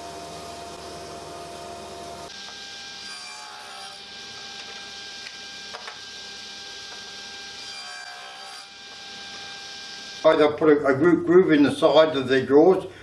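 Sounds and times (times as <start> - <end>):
power tool whirring: 2.2 - 10.3.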